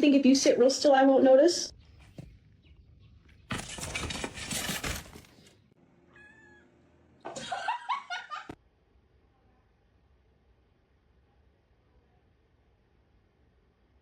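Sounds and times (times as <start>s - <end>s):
noisy clatter: 3.4s - 5.7s
cat meowing: 6.1s - 6.7s.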